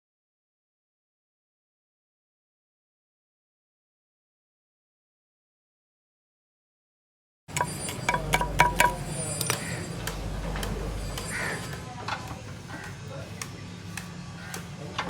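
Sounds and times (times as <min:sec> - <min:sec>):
hand tools clinking on metal: 0:07.5 - 0:11.8.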